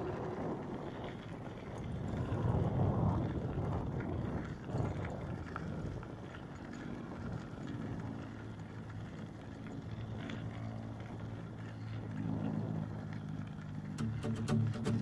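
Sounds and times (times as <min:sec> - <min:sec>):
vehicle engine running: 0:04.2 - 0:15.0.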